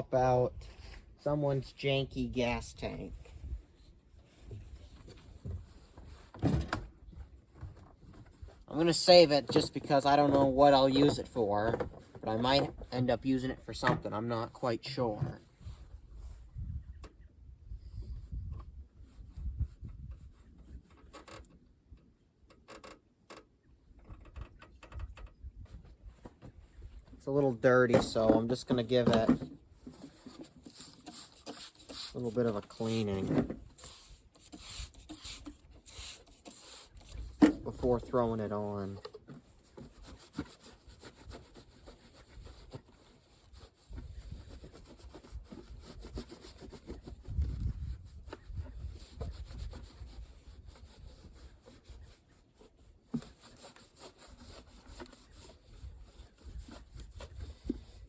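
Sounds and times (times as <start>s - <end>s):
handling bumps and rubbing: 24.0s - 55.8s.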